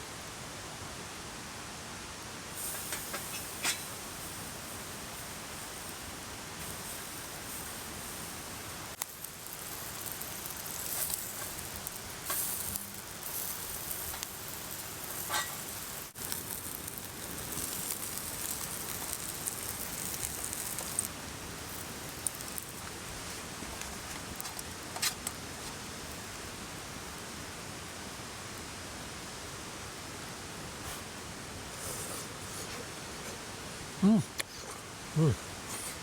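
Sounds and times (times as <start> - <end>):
meat sizzling over charcoal: 2.5 - 29.1.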